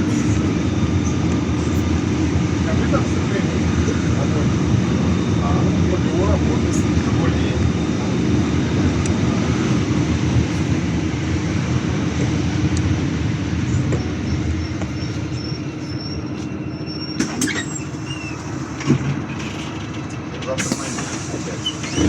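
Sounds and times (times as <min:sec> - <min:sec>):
bus engine and road rumble: 0:00.0 - 0:22.0
short high squeaks: 0:14.6 - 0:19.8.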